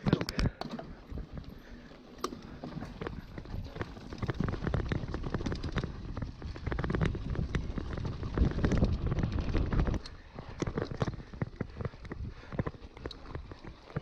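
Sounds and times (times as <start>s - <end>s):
bicycle clicks and ticks: 0.0s - 14.0s
wind rumbling on microphone: 2.9s - 14.0s.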